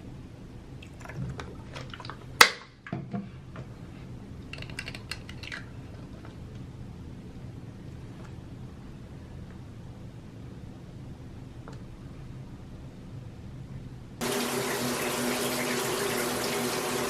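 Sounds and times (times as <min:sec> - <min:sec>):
small hard objects clicking: 0:04.5 - 0:05.6.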